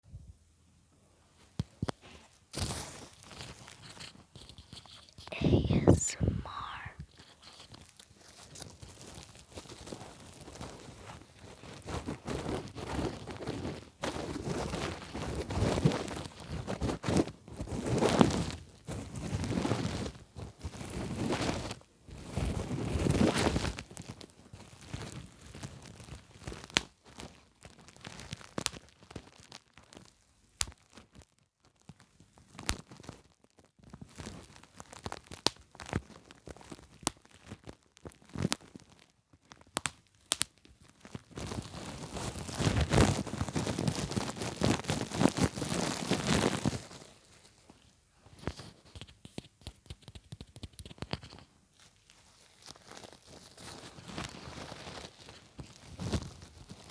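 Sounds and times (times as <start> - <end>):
bubble wrap crinkling: 40.4 - 47.6, 52.2 - 56.9.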